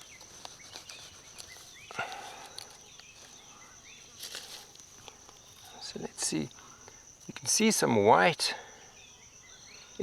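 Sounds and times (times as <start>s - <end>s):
rustling scrape of digging: 0.0s - 1.9s, 4.2s - 4.8s
birds chirping: 0.0s - 10.0s
high insect drone: 0.0s - 10.0s.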